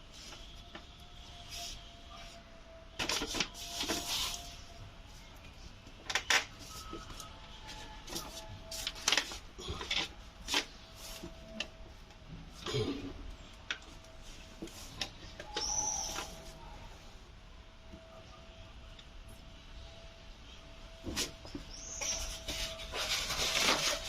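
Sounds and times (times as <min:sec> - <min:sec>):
scraping on car parts: 0:21.0 - 0:24.0.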